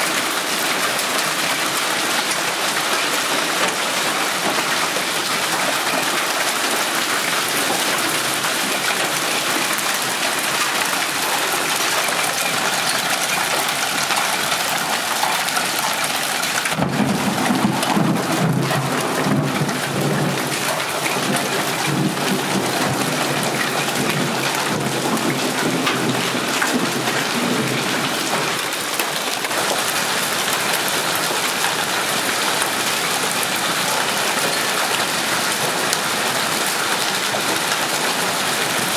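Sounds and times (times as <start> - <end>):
hail and heavy rain pelting: 0.0 - 38.9
rumble of thunder: 16.8 - 28.6.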